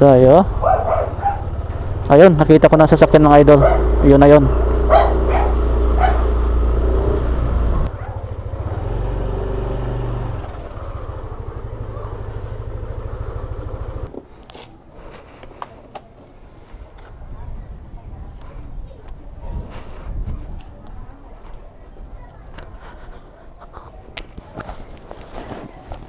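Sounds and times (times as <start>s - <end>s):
motorcycle engine idling: 0.5s - 14.1s.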